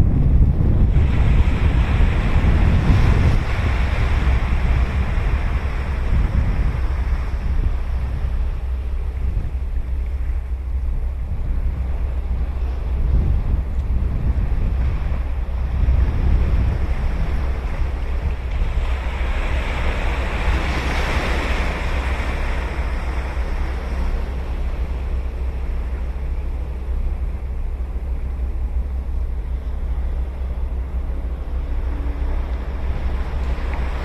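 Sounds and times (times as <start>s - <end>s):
ocean surf breaking on beach: 0.0s - 8.3s, 12.3s - 26.0s
wind buffeting microphone: 0.0s - 34.0s.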